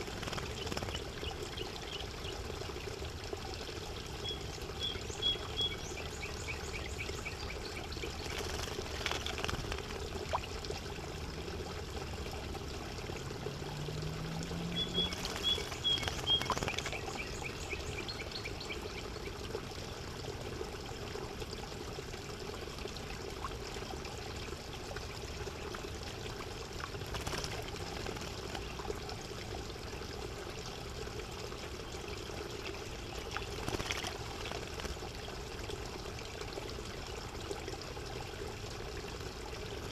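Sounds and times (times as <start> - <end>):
trickling water: 0.0 - 39.9
bird singing notes and trill: 4.2 - 8.6, 14.6 - 19.4.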